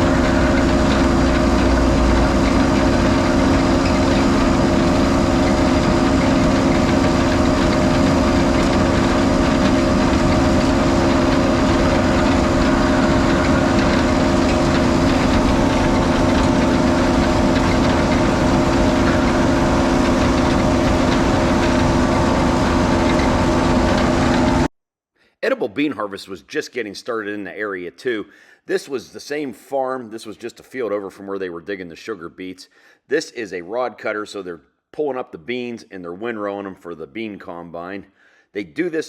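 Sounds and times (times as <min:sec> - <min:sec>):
diesel engine running steadily: 0:00.0 - 0:24.7.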